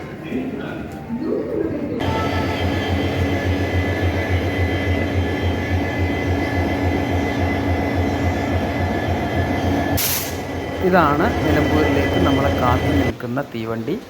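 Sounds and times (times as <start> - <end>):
constant engine whine: 2.0 - 13.2
train engine idling: 2.0 - 14.0.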